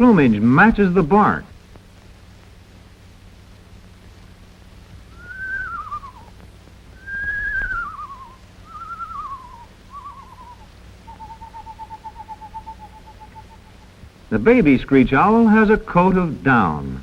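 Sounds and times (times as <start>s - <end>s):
owl steady trill: 0.0s - 16.8s
owl quavering whinnies: 5.1s - 6.4s, 7.0s - 14.0s.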